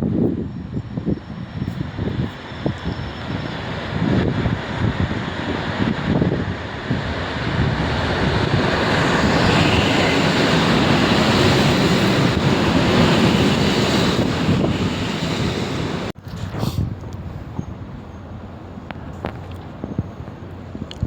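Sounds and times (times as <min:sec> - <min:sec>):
train rushing roar: 0:00.0 - 0:16.2
wind on microphone: 0:00.0 - 0:21.0.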